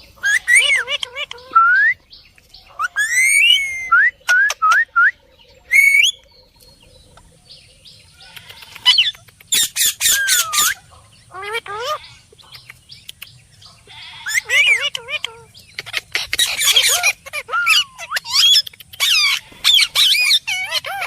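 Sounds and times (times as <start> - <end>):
parrot whistling and squawking: 0.2 - 2.0, 2.8 - 5.1, 5.7 - 6.2, 8.8 - 12.1, 14.2 - 21.0.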